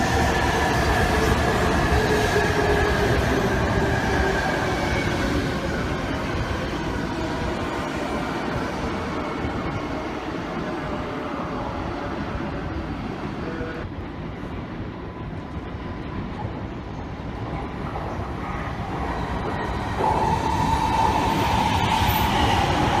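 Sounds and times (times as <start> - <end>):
steady train whine: 0.0 - 23.0.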